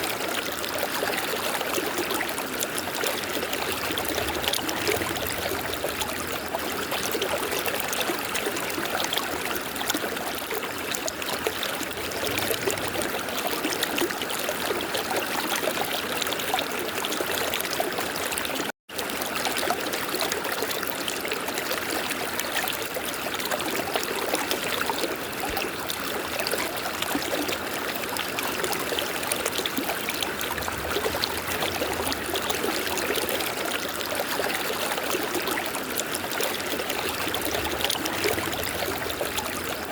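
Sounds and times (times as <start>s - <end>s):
river water rushing: 2.0s - 8.9s, 11.6s - 13.9s, 28.6s - 39.9s.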